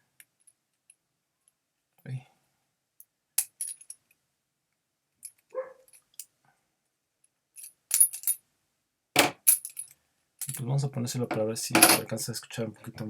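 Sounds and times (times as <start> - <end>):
bicycle parts clinking: 11.3 - 12.1
metal-on-metal knocks: 11.3 - 12.1.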